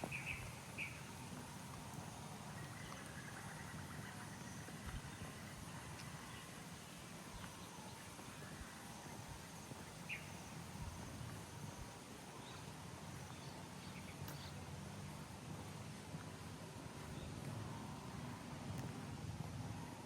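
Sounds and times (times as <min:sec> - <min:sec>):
bird chirps: 0:00.0 - 0:01.2, 0:09.9 - 0:10.6.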